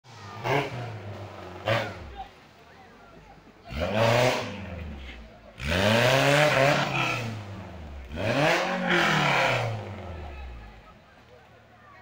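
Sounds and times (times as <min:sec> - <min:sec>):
engine revving hard: 0:00.2 - 0:02.2, 0:03.7 - 0:10.6.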